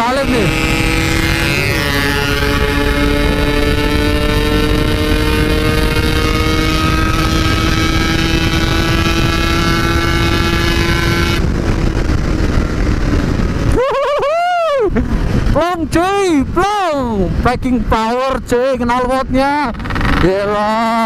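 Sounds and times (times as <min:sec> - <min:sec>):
two-stroke motorcycle engine revving: 0:00.0 - 0:13.7, 0:19.5 - 0:21.0.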